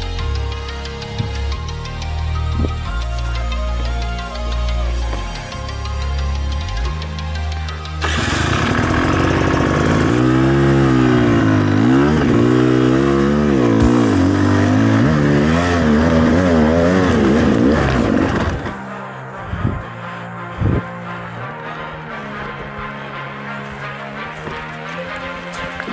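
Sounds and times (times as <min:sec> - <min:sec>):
background music: 0:00.0 - 0:25.9
dirt bike engine revving: 0:08.0 - 0:19.8.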